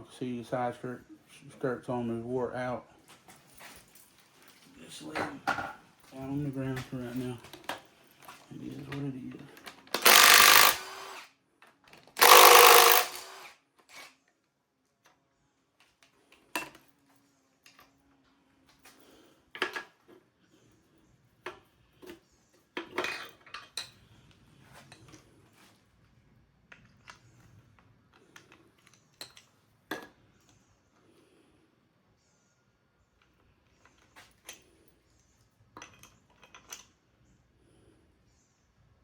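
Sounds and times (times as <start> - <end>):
loud harsh noise: 12.2 - 13.5.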